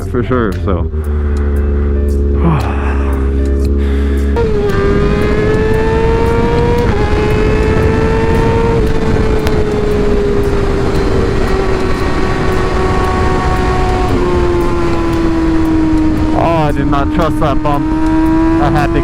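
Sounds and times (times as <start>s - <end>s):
motorcycle engine running: 0.0s - 19.0s
wind noise on microphone: 4.4s - 17.2s.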